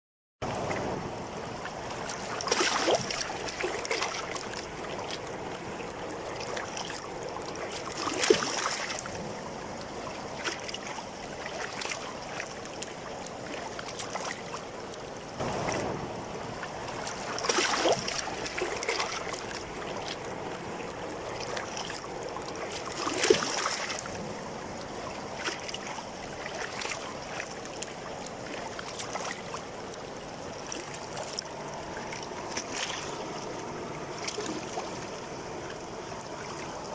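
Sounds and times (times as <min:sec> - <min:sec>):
water splashing: 0:00.4 - 0:36.9.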